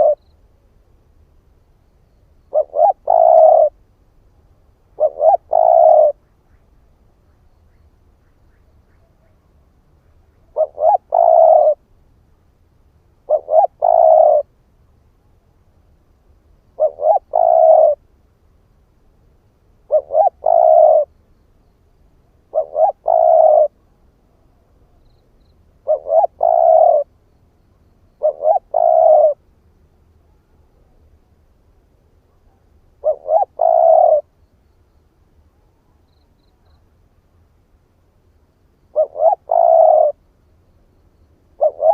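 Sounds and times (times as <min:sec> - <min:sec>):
dove cooing: 0:00.0 - 0:00.2, 0:02.5 - 0:03.8, 0:04.9 - 0:06.2, 0:10.4 - 0:11.8, 0:13.2 - 0:14.5, 0:16.8 - 0:18.0, 0:19.9 - 0:21.1, 0:22.5 - 0:23.8, 0:25.8 - 0:27.1, 0:28.2 - 0:29.4, 0:32.3 - 0:34.3, 0:38.9 - 0:40.2, 0:41.6 - 0:41.9.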